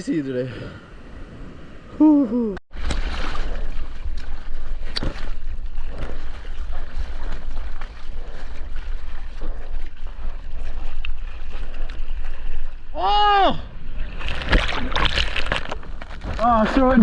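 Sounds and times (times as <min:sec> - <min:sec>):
water splash: 0:02.7 - 0:06.4, 0:14.0 - 0:16.4.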